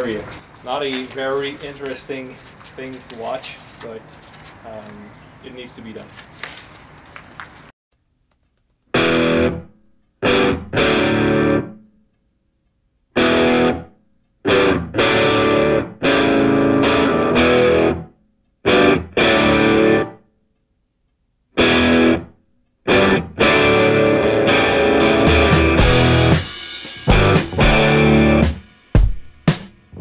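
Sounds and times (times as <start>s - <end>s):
distorted guitar riffs: 8.9s - 11.8s, 13.2s - 20.2s, 21.6s - 22.3s, 22.9s - 29.1s.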